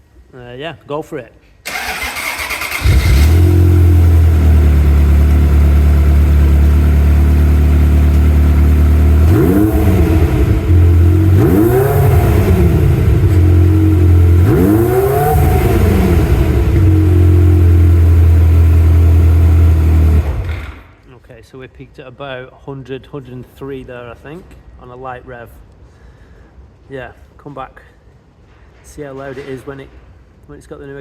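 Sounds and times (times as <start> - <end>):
car engine idling and revving: 2.8 - 20.9.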